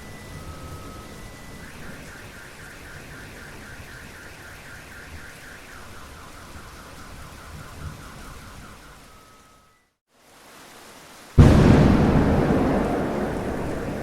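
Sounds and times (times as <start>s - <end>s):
car alarm chirping: 0.4s - 6.6s
steady rain: 10.1s - 14.0s.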